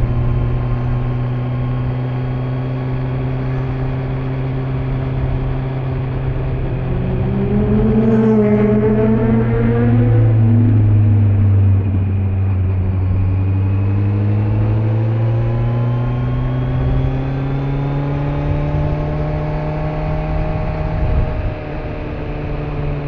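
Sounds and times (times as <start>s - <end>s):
wind and road noise: 0.0s - 23.0s.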